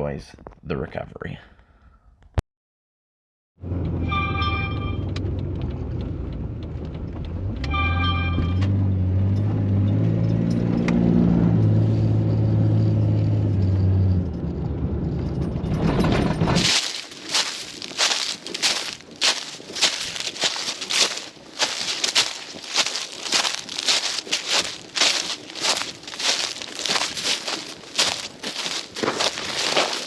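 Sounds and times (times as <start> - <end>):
vehicle engine revving: 3.6 - 16.7
short pitched beeps: 4.0 - 5.2, 7.7 - 8.7
rustling noise: 16.6 - 30.0.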